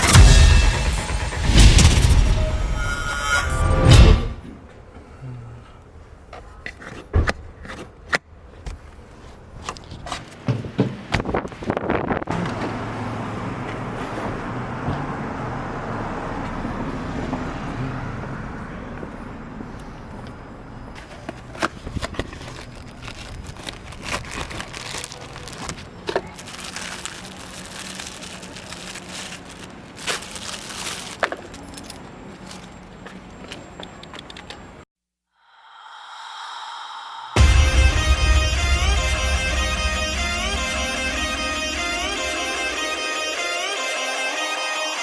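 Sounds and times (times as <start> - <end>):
low hum: 35.5 - 43.5.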